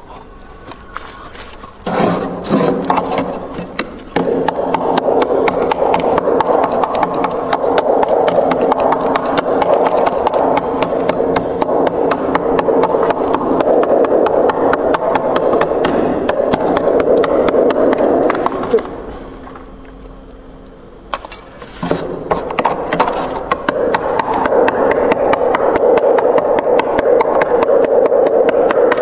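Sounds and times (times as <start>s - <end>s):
freezer frost crunching: 0.0s - 4.2s, 21.3s - 23.6s.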